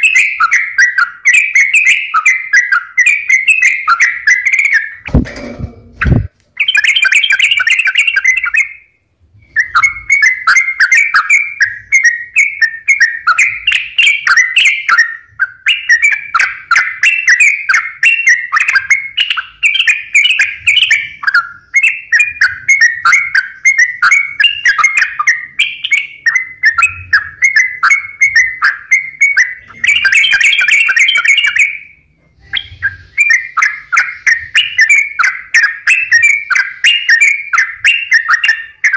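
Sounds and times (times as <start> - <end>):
bulbul song chattering: 0.0 - 38.9
low thump: 5.1 - 6.3.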